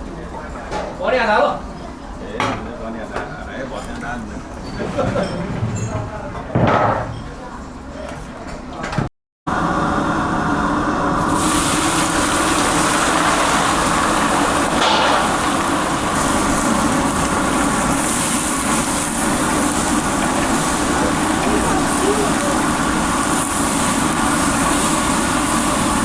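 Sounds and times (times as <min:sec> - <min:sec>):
hiss: 0:11.2 - 0:26.0.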